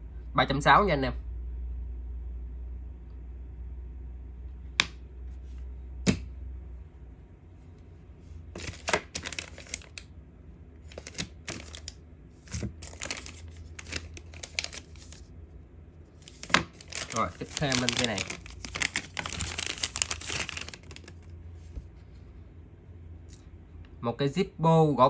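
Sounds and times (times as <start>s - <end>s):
plastic wrapping crinkling: 8.5s - 10.1s, 10.8s - 15.3s, 16.2s - 21.3s.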